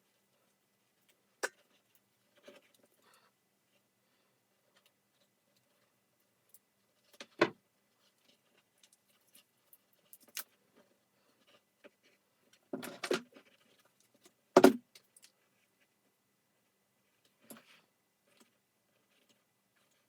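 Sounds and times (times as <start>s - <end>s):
plastic parts knocking and clattering: 12.7s - 13.6s, 14.2s - 15.2s.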